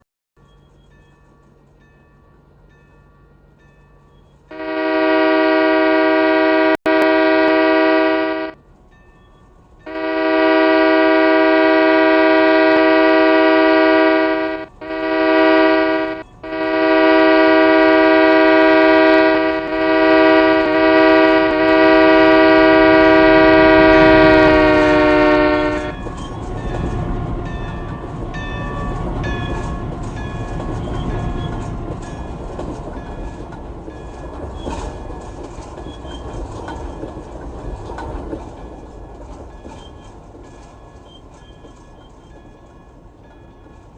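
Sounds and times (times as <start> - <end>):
locomotive air horn: 4.5 - 8.6, 9.9 - 26.6
train wheels clattering: 19.2 - 43.9.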